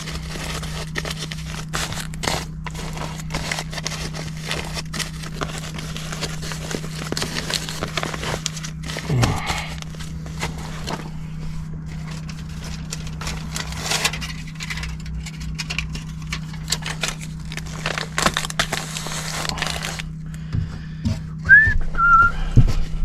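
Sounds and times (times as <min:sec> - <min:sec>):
steady low hum: 0:00.0 - 0:23.0
whistled note: 0:21.5 - 0:22.4.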